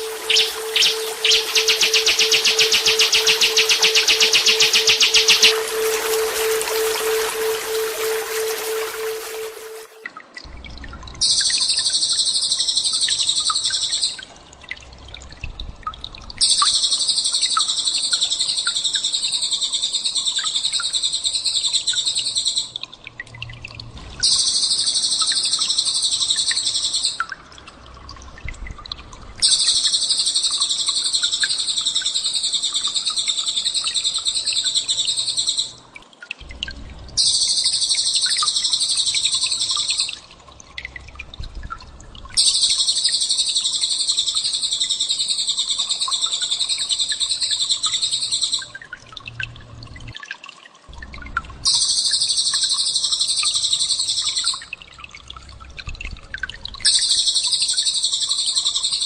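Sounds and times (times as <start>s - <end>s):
songbird chattering trill: 0.0s - 9.8s.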